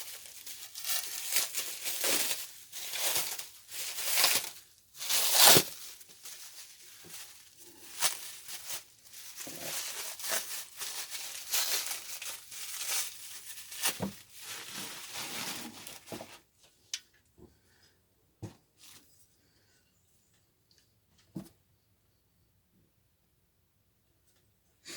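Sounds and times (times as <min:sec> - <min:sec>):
plastic crinkling and tearing: 0:00.0 - 0:16.4.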